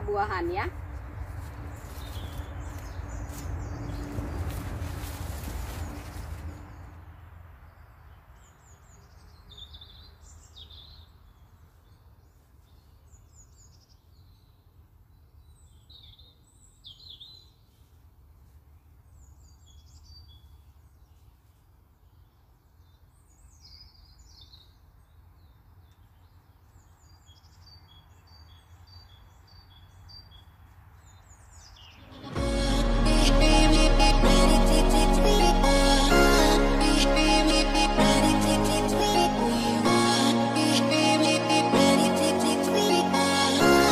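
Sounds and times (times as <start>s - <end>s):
small birds chirping and singing: 1.4s - 4.8s, 7.7s - 43.9s.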